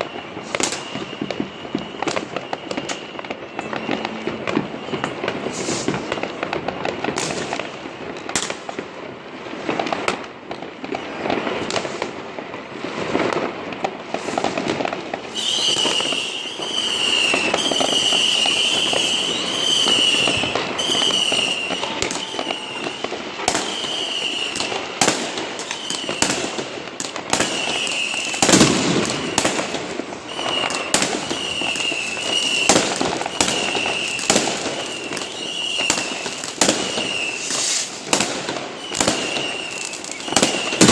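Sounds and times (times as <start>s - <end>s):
firecrackers crackling: 0.0s - 40.9s
rockets exploding with sharp bangs: 0.0s - 40.9s.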